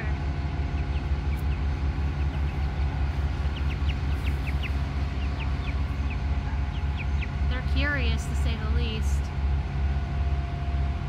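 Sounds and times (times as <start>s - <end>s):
steady low rumble: 0.0s - 11.0s
bird chirps: 0.7s - 7.8s.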